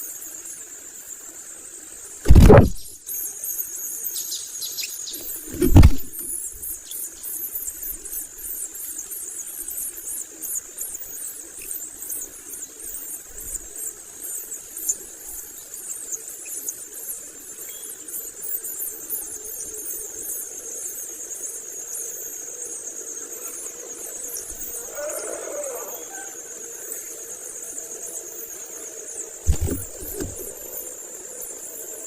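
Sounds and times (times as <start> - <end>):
steady high whine: 2.3 - 2.9.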